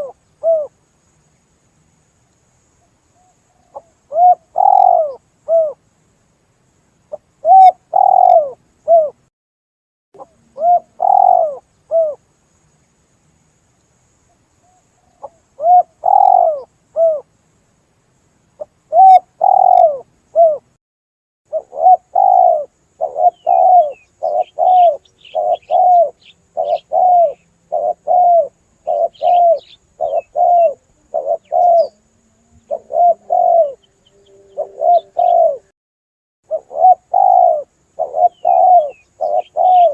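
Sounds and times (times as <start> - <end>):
dove cooing: 0.0 - 0.7, 3.6 - 5.8, 7.1 - 9.2, 10.2 - 12.2, 15.1 - 17.3, 18.6 - 20.7, 21.5 - 35.7, 36.5 - 39.9
faint high bird chirps: 2.8 - 5.8, 7.1 - 9.2, 10.2 - 12.2, 14.2 - 17.3, 18.6 - 20.7, 21.5 - 35.7, 36.5 - 39.9.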